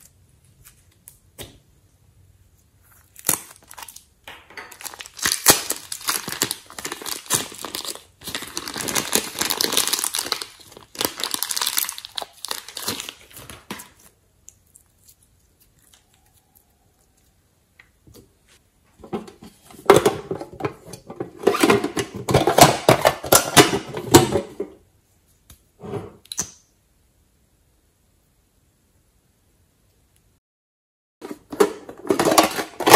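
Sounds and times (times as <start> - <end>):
crinkling handling noise: 2.5 - 16.3, 31.2 - 32.9.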